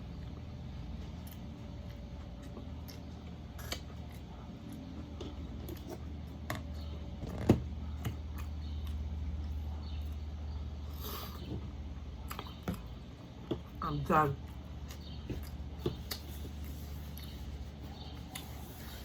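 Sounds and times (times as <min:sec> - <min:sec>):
crunching while eating: 0:00.0 - 0:13.8
steady low hum: 0:00.0 - 0:19.0.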